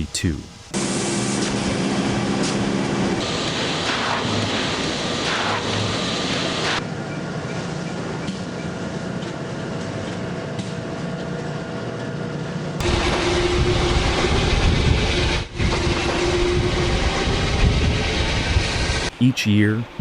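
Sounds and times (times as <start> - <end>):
machinery noise: 0.0 - 8.9, 12.8 - 20.0.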